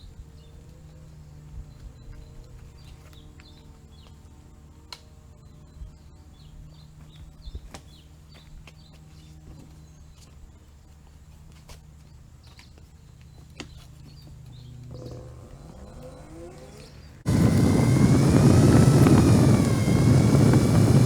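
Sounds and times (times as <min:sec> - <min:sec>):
small birds chirping: 0:12.0 - 0:21.0
steady low hum: 0:14.0 - 0:21.0.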